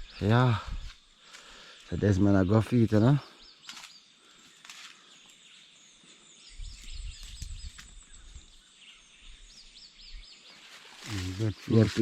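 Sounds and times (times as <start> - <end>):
birds chirping: 0.0 - 12.0
outdoor background noise: 0.0 - 12.0.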